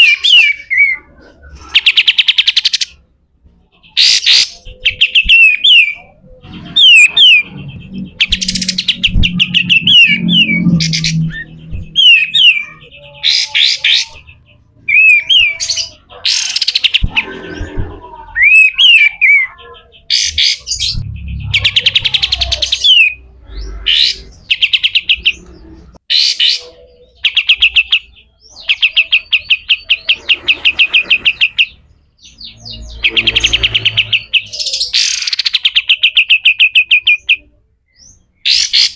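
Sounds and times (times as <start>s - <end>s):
bulbul singing: 3.7s - 38.9s
harsh bird chattering: 3.8s - 37.5s
low thuds: 8.0s - 12.3s.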